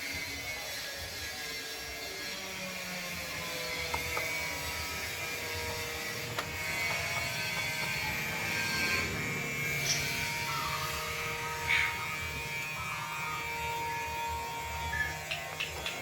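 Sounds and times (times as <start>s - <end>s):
steady buzz: 0.0s - 16.0s
starling calls: 3.3s - 16.0s.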